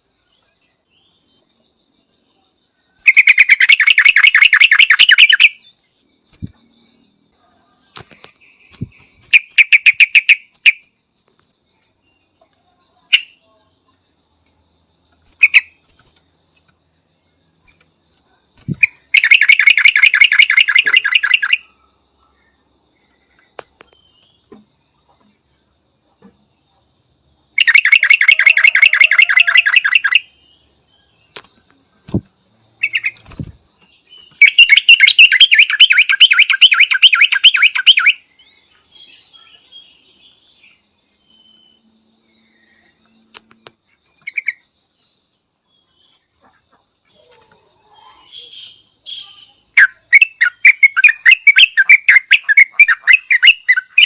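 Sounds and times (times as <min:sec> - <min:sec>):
bird chattering calls: 0:03.1 - 0:05.6, 0:08.7 - 0:10.8, 0:15.4 - 0:15.7, 0:18.7 - 0:21.6, 0:34.4 - 0:38.2, 0:48.2 - 0:54.0.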